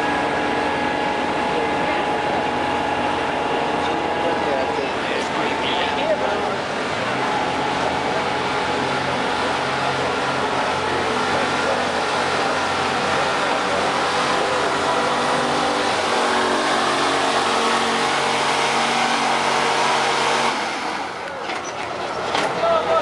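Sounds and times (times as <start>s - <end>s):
truck engine revving hard: 0.0s - 23.0s.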